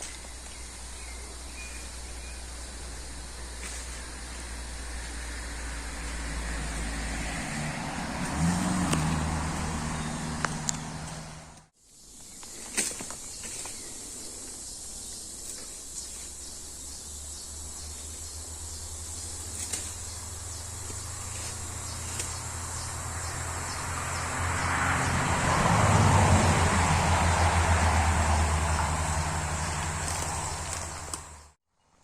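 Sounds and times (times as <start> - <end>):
vehicle engine running: 0.0 - 11.7, 17.9 - 31.6.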